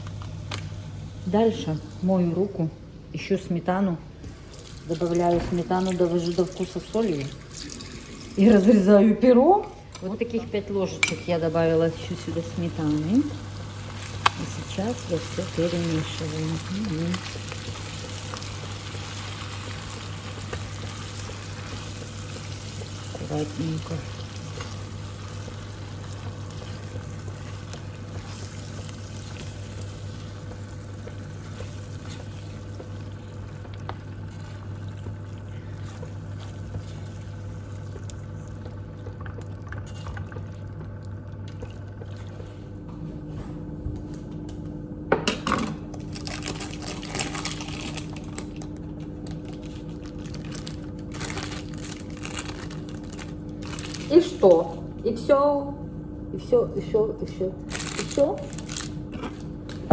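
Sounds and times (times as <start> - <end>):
background hum: 0.0 - 59.9
food simmering in a frying pan: 12.4 - 42.0.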